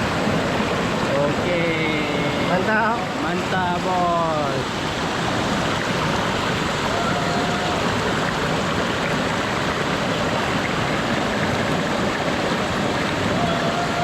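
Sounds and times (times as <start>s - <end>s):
waterfall and stream rushing: 0.0s - 14.0s.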